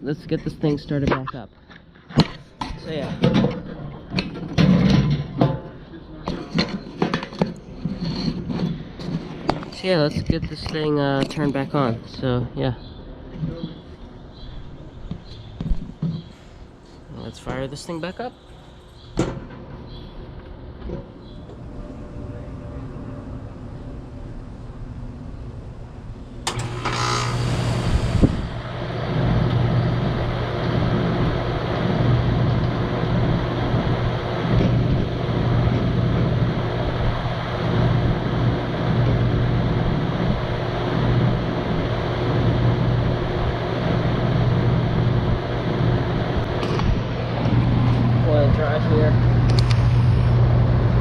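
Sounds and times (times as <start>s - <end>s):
condenser fan running: 0.0s - 1.5s, 2.2s - 51.0s
compressor humming: 0.0s - 51.0s
air conditioner click: 26.4s - 28.3s.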